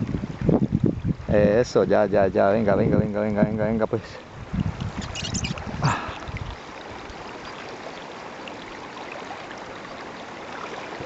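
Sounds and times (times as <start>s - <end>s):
river water rushing: 4.2s - 11.0s.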